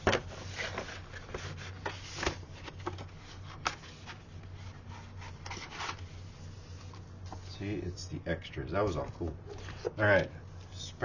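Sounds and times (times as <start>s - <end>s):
steady low hum: 0.0s - 11.0s
paper rustling: 0.3s - 7.4s.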